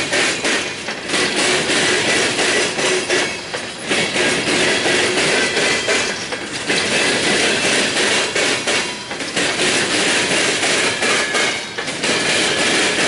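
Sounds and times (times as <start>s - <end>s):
train wheels rolling on rail: 0.0s - 13.0s
wheels clacking over rail joints: 0.0s - 13.0s.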